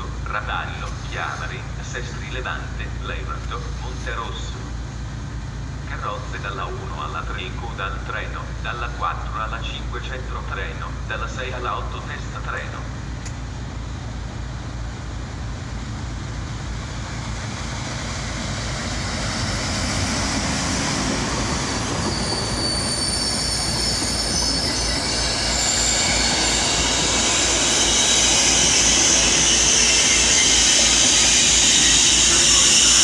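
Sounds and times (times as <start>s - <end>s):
train rumbling: 0.0s - 33.0s
train brakes squealing: 0.8s - 2.2s, 16.9s - 33.0s.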